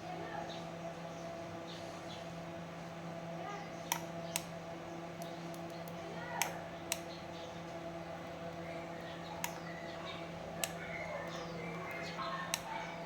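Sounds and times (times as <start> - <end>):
steady electrical hum: 0.0 - 13.0
sharp clicks: 3.9 - 4.5, 5.2 - 7.1, 10.6 - 10.8.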